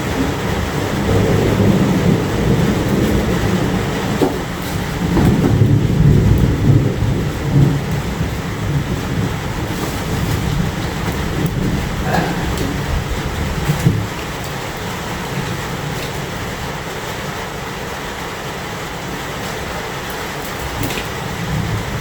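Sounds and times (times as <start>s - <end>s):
heavy rain falling: 0.0s - 22.0s
rolling thunder rumble: 0.0s - 22.0s.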